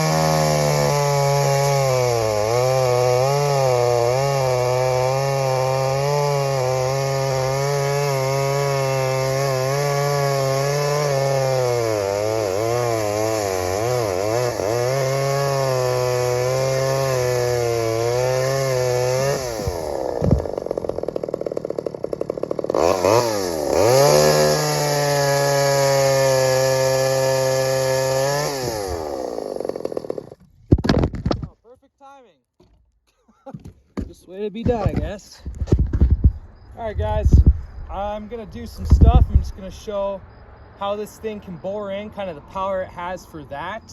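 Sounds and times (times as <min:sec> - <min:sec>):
chainsaw cutting wood: 0:00.0 - 0:31.5, 0:37.3 - 0:39.6.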